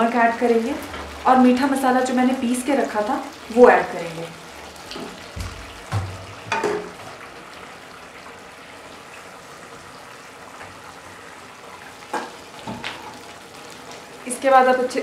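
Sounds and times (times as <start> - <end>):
gravy sizzling in a pan: 0.0 - 15.0
wooden spatula knocking on pan: 5.0 - 7.0.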